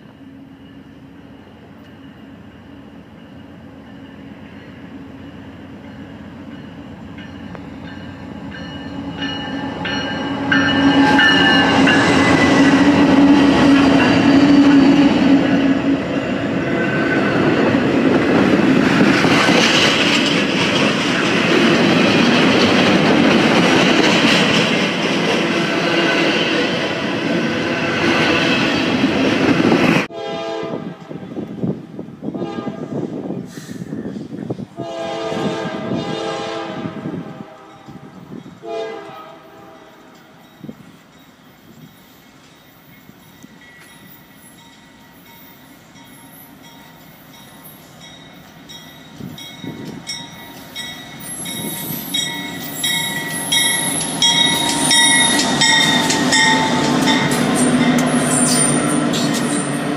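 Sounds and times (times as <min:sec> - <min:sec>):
train wheel and rail noise: 0:00.0 - 0:59.9
train horn: 0:08.8 - 0:16.0, 0:30.0 - 0:31.5, 0:32.2 - 0:33.8, 0:34.8 - 0:40.4.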